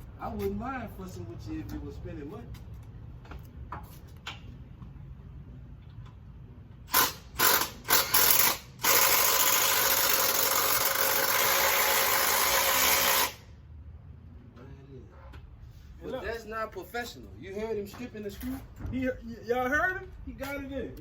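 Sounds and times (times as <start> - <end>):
power drill driving a screw: 6.9 - 13.4.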